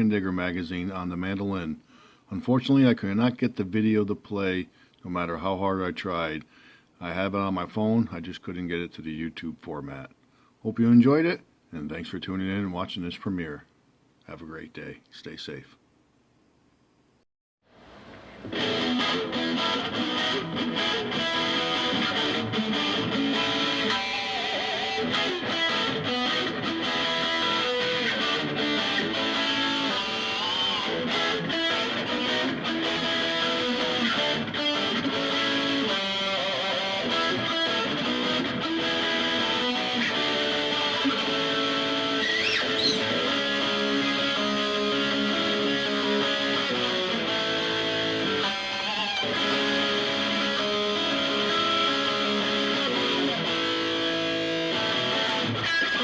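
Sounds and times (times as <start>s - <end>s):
guitar strummed and plucked: 17.8s - 56.0s.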